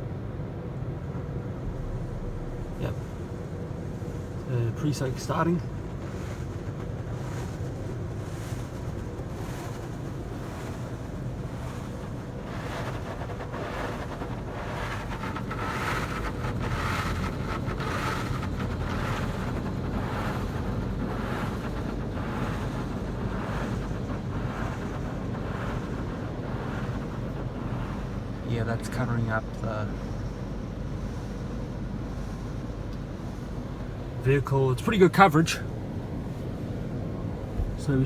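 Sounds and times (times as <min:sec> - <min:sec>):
low hum of machinery: 0:00.0 - 0:38.0
foam spray hissing on car: 0:01.7 - 0:30.4.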